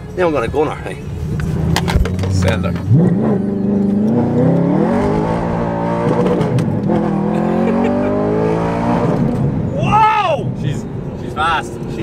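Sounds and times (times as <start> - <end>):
car engine accelerating hard: 1.3 - 9.7.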